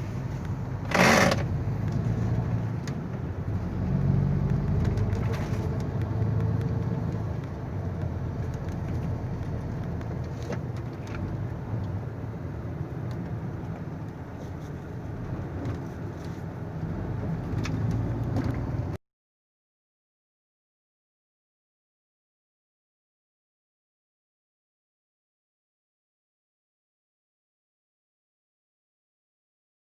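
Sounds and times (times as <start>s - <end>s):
truck engine running: 0.0s - 18.1s
road noise: 0.0s - 19.0s.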